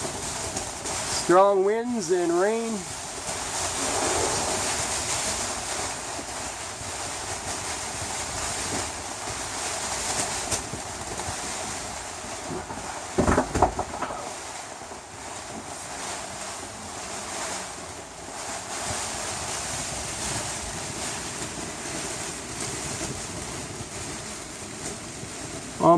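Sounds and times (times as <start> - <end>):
strong wind and rain: 0.0 - 25.9
wind buffeting microphone: 3.1 - 9.6.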